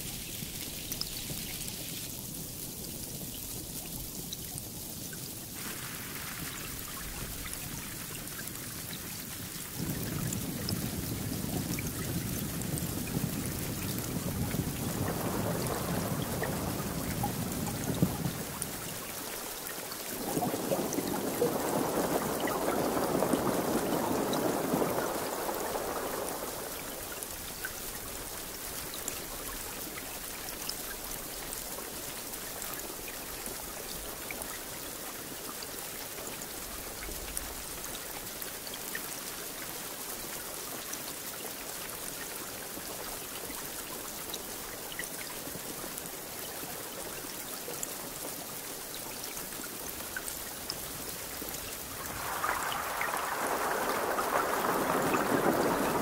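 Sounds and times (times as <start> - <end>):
steady rain hiss: 0.0 - 56.0
raindrop ticks: 0.1 - 56.0
low rumble of thunder: 5.6 - 30.2, 50.7 - 56.0.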